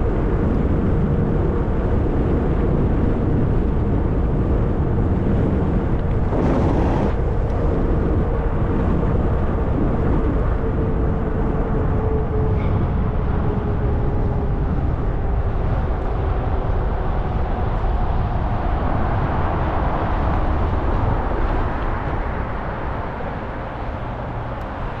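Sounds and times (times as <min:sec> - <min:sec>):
wind rushing over microphone: 0:00.0 - 0:25.0
bike tyre noise: 0:05.0 - 0:09.7.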